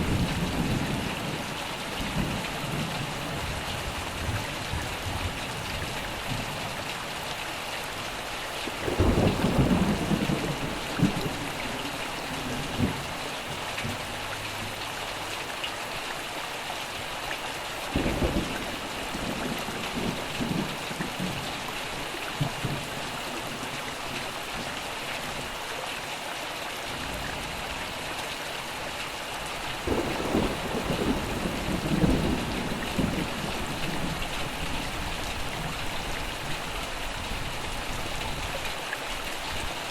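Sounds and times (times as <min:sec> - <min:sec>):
heavy rain hissing: 0:00.0 - 0:39.9
thunder rumbling: 0:08.8 - 0:14.2, 0:29.8 - 0:35.8.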